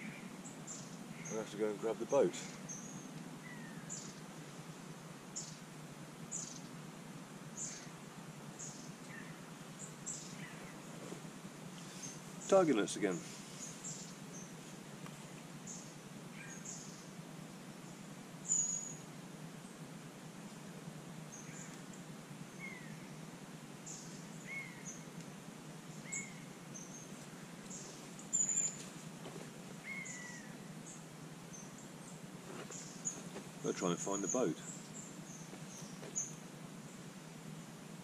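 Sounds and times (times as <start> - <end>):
birds chirping and whistling: 0.0 - 4.2, 6.3 - 6.7, 7.6 - 7.9, 15.7 - 17.1, 18.4 - 19.0, 22.5 - 23.2, 23.9 - 25.1, 25.9 - 28.8, 29.8 - 33.4
loud high bird calls: 0.0 - 4.3, 7.6 - 8.0, 8.6 - 10.9, 15.2 - 17.1, 17.9 - 19.0, 21.3 - 23.2, 23.9 - 25.2, 25.9 - 28.9, 29.8 - 37.1
low background hum: 0.0 - 38.0.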